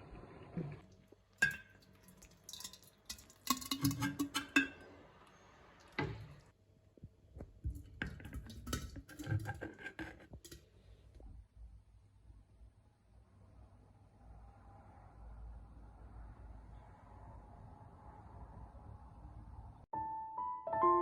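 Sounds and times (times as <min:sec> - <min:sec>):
dishes and utensils clattering: 0:01.4 - 0:04.9.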